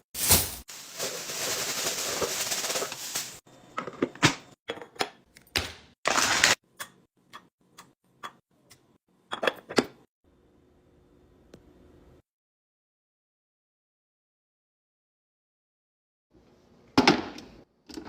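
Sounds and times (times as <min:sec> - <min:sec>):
rustling: 0:00.2 - 0:03.4.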